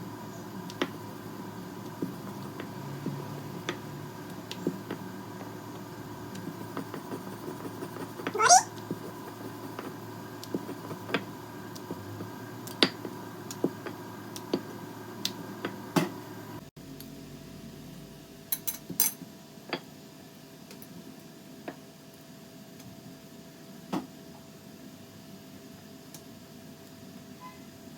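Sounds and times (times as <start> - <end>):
steady hum: 0.0 - 12.6.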